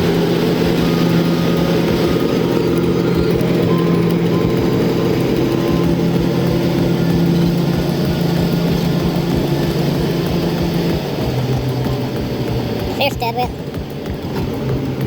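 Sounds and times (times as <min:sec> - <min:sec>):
heavy vehicle engine rumbling: 0:00.0 - 0:15.0.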